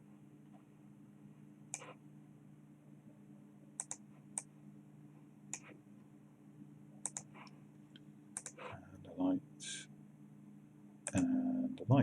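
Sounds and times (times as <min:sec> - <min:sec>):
faint low hum: 0:00.0 - 0:12.0
computer mouse clicking: 0:01.7 - 0:02.0, 0:03.8 - 0:04.5, 0:05.5 - 0:05.8, 0:07.0 - 0:07.6, 0:08.4 - 0:08.7, 0:11.0 - 0:11.3.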